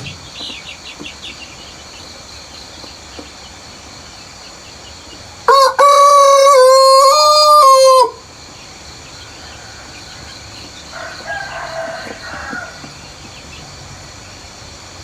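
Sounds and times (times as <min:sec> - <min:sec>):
insects buzzing: 0:00.0 - 0:15.0
rooster crowing: 0:05.4 - 0:08.2, 0:09.3 - 0:13.1.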